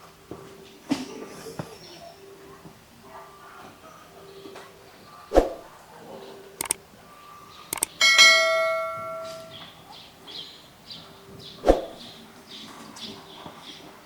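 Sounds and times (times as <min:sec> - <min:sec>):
bell ringing: 0:08.0 - 0:09.6.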